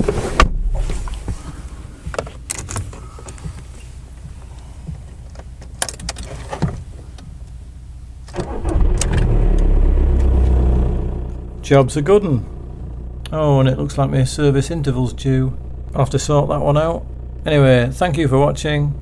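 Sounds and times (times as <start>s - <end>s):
sharp clicks and rattles: 2.1s - 3.7s, 5.3s - 6.5s
diesel engine cranking and running: 8.2s - 19.0s.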